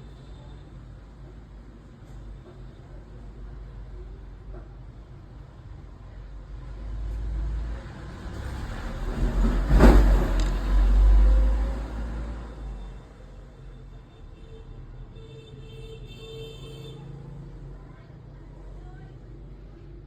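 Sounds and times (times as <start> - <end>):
road vehicle passing by: 6.6 - 13.6.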